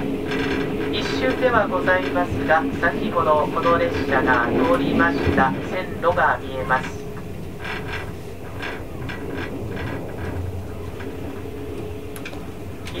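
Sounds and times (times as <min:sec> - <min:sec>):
train wheels rumbling on rail: 0:00.0 - 0:13.0
faint regular clicks: 0:07.2 - 0:13.0.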